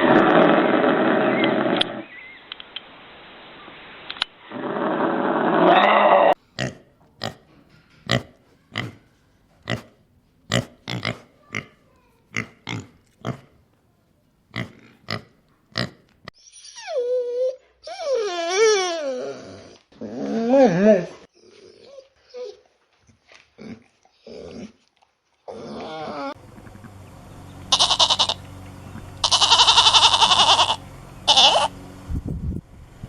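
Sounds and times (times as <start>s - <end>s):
harsh rushing animal noise: 0.0s - 2.2s, 4.4s - 6.4s, 26.4s - 32.3s
pig grunting: 9.6s - 13.6s, 14.5s - 16.0s, 27.7s - 31.7s.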